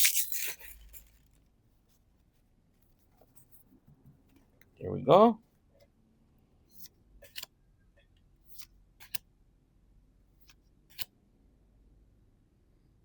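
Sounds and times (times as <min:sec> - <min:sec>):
cards swishing and clicking: 0:00.0 - 0:01.3, 0:06.7 - 0:07.5, 0:08.4 - 0:09.2.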